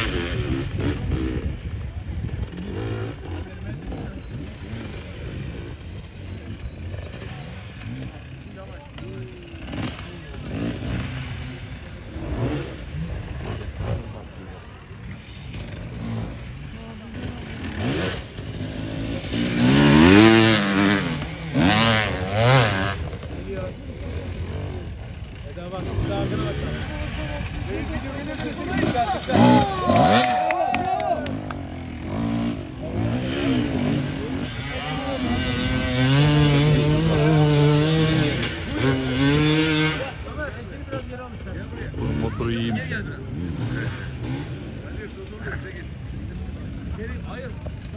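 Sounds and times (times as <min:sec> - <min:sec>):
off-road engine revving: 0:00.0 - 0:47.9
racing engine revving hard: 0:17.2 - 0:23.2, 0:25.8 - 0:40.2.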